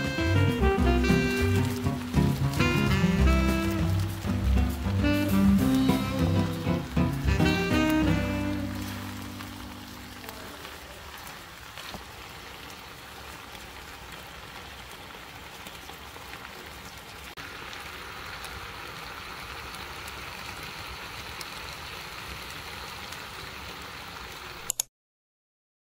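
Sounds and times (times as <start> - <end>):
meat sizzling in a frying pan: 0.0 - 12.6, 16.9 - 24.6.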